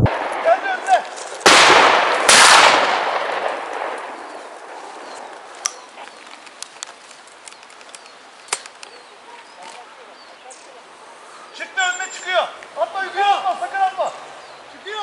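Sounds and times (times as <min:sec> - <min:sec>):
gunshots echoing: 0:00.0 - 0:05.1.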